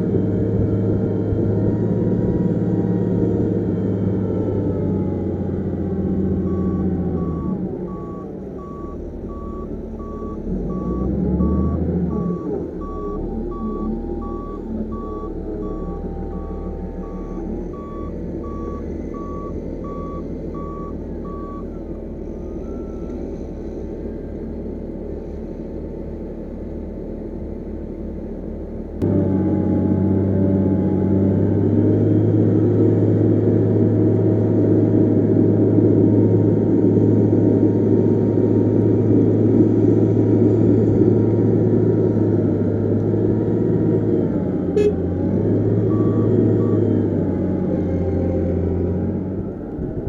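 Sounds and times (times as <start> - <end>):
heavy diesel engine running: 0.0 - 50.0
reversing alarm beeping: 4.9 - 23.8, 44.7 - 47.9.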